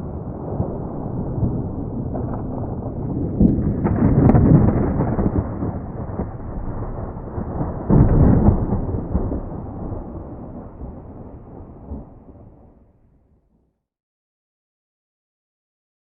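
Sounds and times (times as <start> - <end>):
deep rumbling noise: 0.0 - 12.5.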